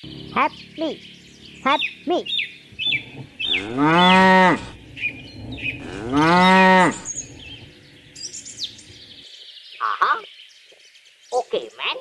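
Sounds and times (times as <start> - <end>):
high bird chirps: 0.0 - 12.0
cow mooing: 2.8 - 8.1.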